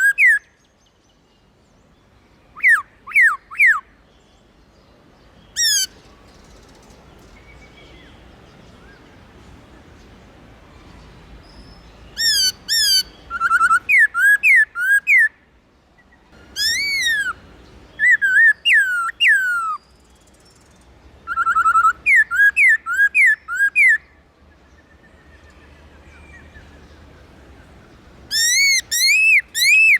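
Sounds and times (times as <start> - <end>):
bird whistling song: 0.0 - 0.8, 2.5 - 4.0, 5.5 - 8.2, 11.4 - 15.4, 16.0 - 26.9, 28.3 - 29.9.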